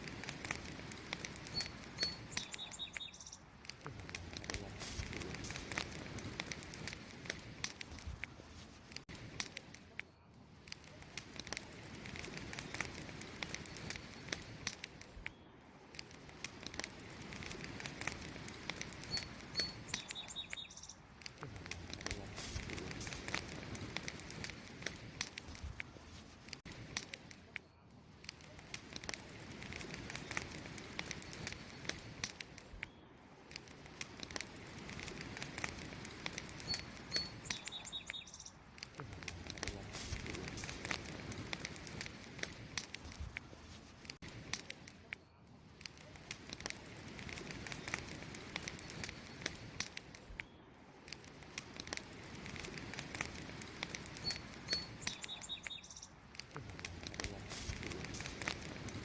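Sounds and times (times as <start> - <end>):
flame hissing: 0.0 - 10.0, 10.6 - 59.0
campfire crackling: 0.0 - 59.0
short bird chirps: 1.5 - 3.5, 19.1 - 21.0, 36.6 - 38.6, 54.2 - 56.2.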